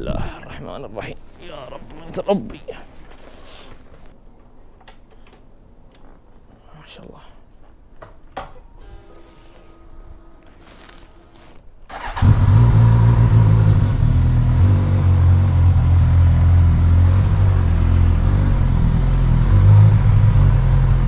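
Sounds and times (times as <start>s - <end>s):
motorcycle engine idling: 11.9s - 21.0s.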